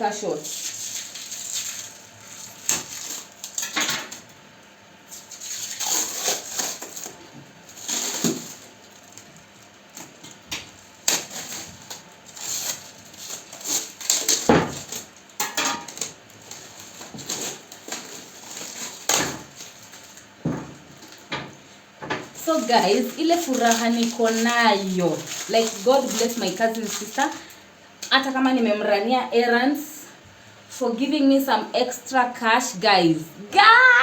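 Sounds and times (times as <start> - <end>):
rustling: 22.4 - 27.5.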